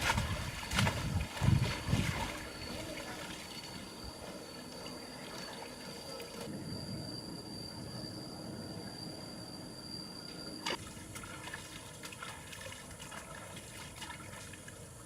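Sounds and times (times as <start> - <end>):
water splashing: 0.0 - 3.8, 10.8 - 14.9
low water trickle: 10.8 - 15.0.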